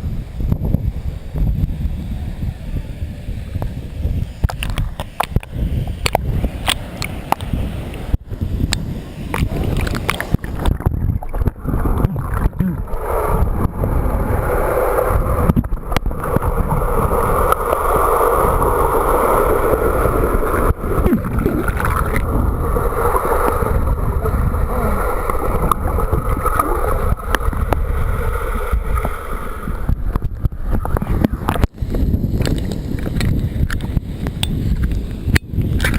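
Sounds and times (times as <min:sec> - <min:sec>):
wind buffeting microphone: 0:00.0 - 0:35.9
waterfall rushing: 0:09.0 - 0:29.9.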